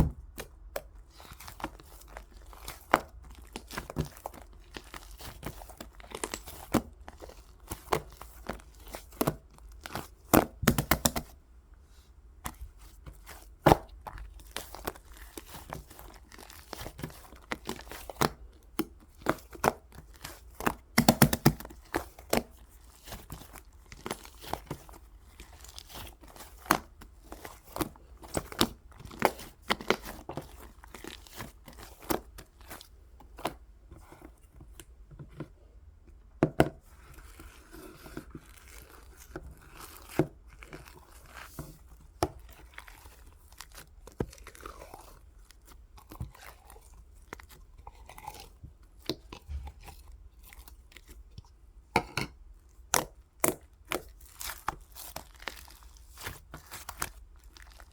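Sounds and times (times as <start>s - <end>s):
slime clicking and popping: 20.9s - 21.7s.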